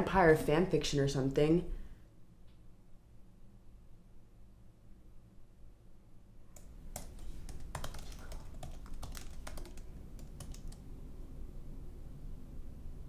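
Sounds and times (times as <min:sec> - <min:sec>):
computer keyboard typing: 0:06.5 - 0:10.9.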